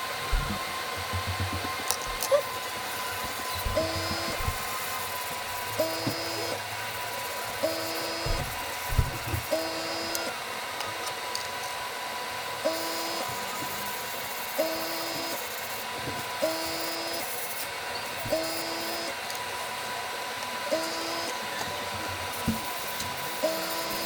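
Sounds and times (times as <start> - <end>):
airbrush compressor hissing: 0.0 - 10.4, 12.6 - 19.2, 22.2 - 24.0
low knocks: 0.3 - 2.4, 3.2 - 4.7.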